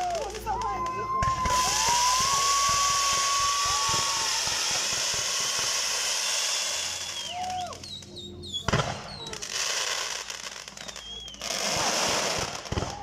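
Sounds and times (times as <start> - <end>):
falling whistles: 1.1 - 9.5, 10.6 - 13.0
firework spraying sparks with hiss: 1.3 - 13.0
whistle tone: 5.2 - 9.3, 10.8 - 11.9.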